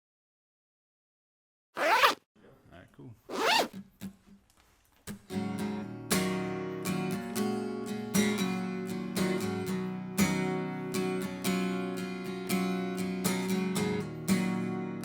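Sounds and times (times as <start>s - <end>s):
acoustic guitar strumming: 5.1s - 15.0s.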